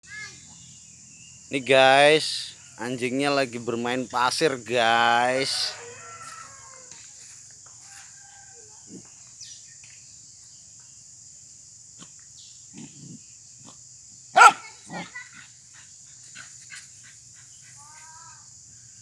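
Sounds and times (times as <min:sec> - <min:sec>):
steady high hiss: 0:01.4 - 0:06.3
dog grunting: 0:12.7 - 0:13.8, 0:14.4 - 0:15.2
dog barking: 0:14.4 - 0:15.2.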